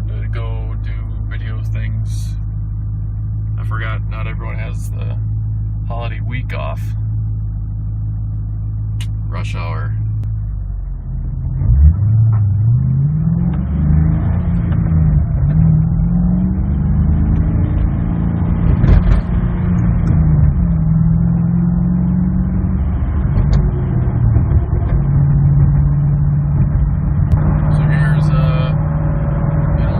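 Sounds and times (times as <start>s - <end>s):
car engine revving from inside: 9.9s - 29.9s.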